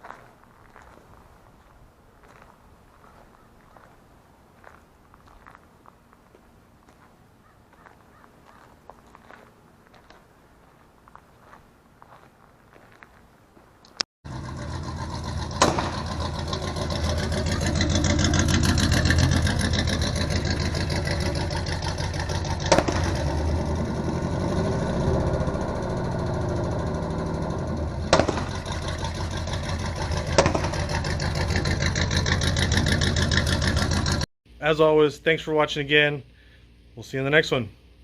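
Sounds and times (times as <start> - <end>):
pickup truck engine running loud: 14.3 - 34.3.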